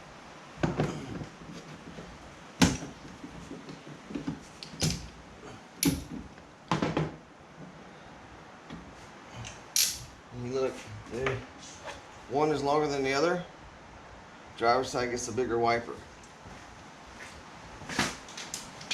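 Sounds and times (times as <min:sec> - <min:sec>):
tools clacking and knocking: 0:04.1 - 0:05.1, 0:05.8 - 0:06.2, 0:09.8 - 0:10.1, 0:18.3 - 0:18.9.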